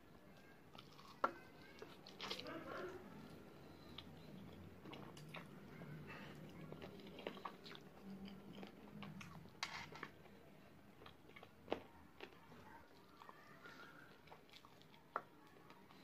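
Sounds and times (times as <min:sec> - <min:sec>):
chewing and biting: 0:06.3 - 0:09.5.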